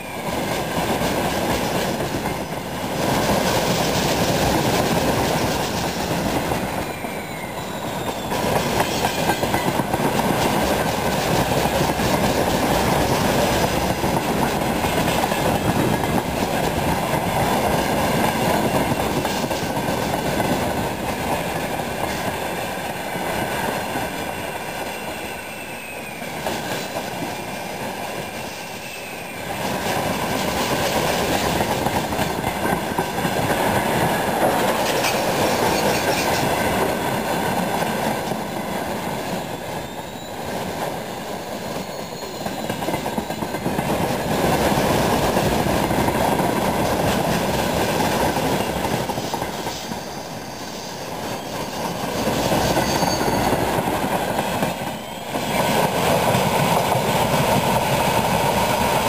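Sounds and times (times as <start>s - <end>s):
freight train wheels clattering: 0.2s - 59.0s
faint wheel squeal: 6.8s - 9.6s, 24.9s - 26.7s, 39.6s - 40.5s, 41.6s - 43.6s, 49.7s - 53.6s.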